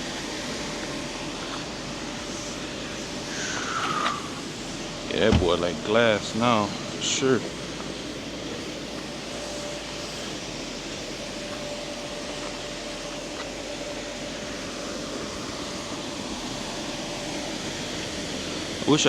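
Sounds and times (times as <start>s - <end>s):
car wash drone: 0.0s - 19.0s
faint thin whine: 0.0s - 19.0s.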